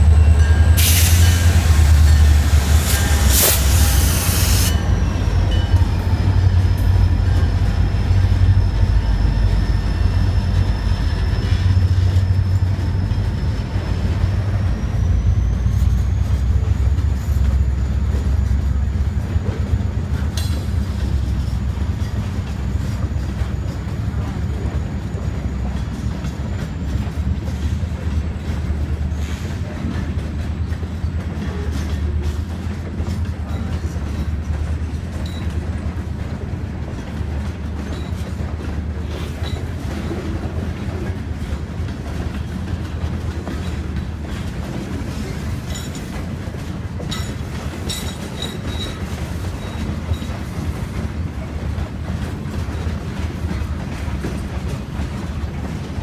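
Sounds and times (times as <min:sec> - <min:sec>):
high wheel squeal: 0:00.0 - 0:19.6
freight cars rumbling on rails: 0:00.0 - 0:56.0
locomotive rushing past: 0:00.0 - 0:56.0.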